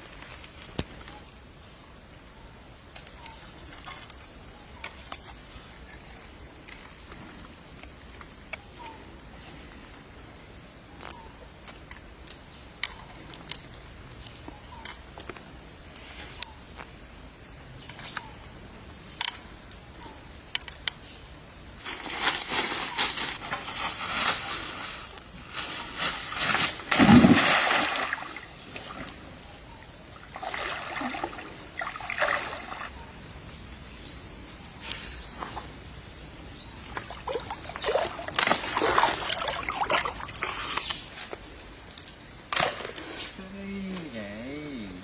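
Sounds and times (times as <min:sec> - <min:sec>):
water splashing and sloshing: 0:26.2 - 0:33.1, 0:36.8 - 0:41.4
heavy water splash: 0:26.9 - 0:29.1, 0:37.0 - 0:40.4.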